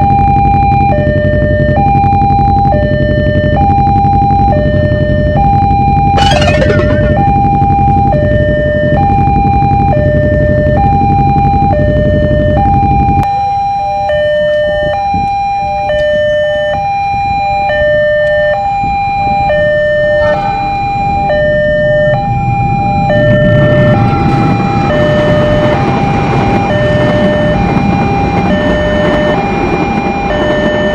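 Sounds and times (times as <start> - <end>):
level crossing two-tone alarm: 5.4 - 8.1, 13.5 - 30.9.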